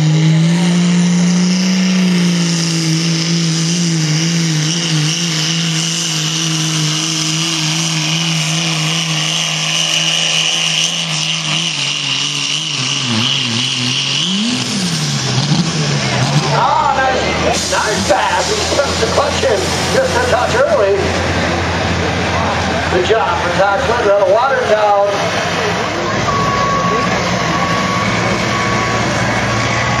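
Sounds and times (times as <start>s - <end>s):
diesel engine revving under load: 0.0s - 30.0s.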